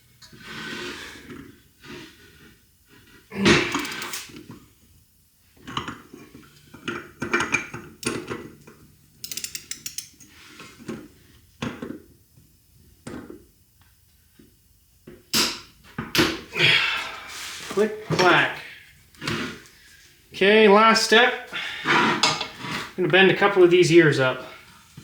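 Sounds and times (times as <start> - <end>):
metal tools clanking: 22.2 - 22.6.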